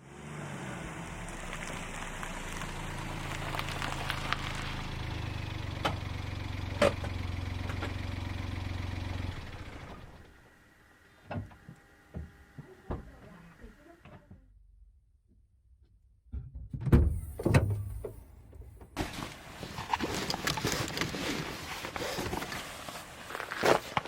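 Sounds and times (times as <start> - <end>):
engine humming: 0.0 - 14.8.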